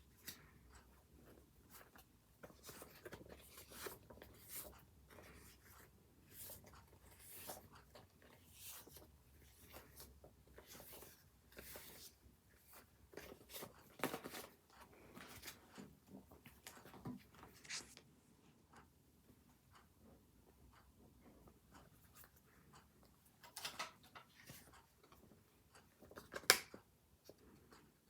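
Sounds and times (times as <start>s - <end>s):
paper rustling and scratching: 17.4s - 18.0s.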